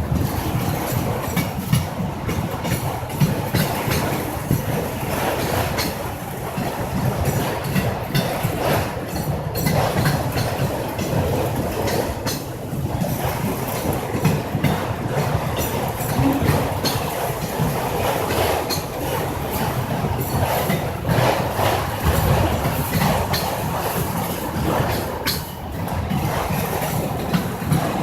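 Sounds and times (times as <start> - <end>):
freight train rumbling past: 0.0 - 28.0
wheels clacking over rail joints: 0.0 - 28.0.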